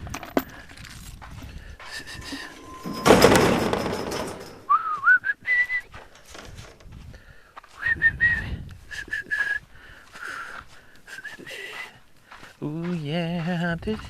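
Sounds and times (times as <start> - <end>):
short whistled notes: 4.6 - 5.9.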